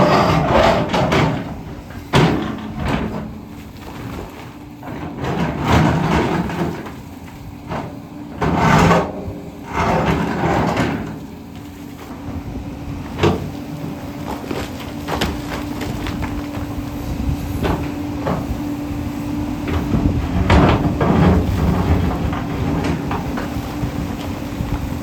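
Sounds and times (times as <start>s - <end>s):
bucket scraping against rock: 0.0s - 1.5s, 8.4s - 11.2s
excavator engine running: 0.0s - 25.0s.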